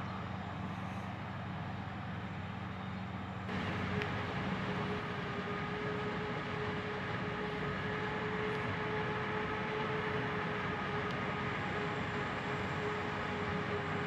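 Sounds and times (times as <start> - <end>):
heavy machinery engine drone: 0.0 - 14.0
machinery whine: 0.0 - 14.0.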